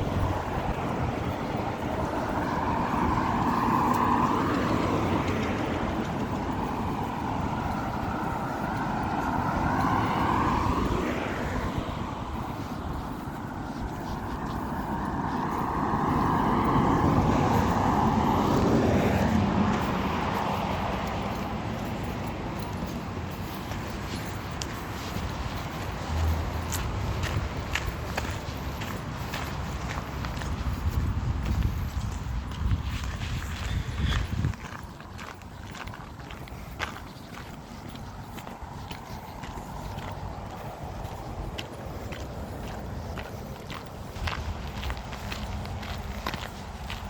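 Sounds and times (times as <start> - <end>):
cars passing on road: 0.0 - 47.0.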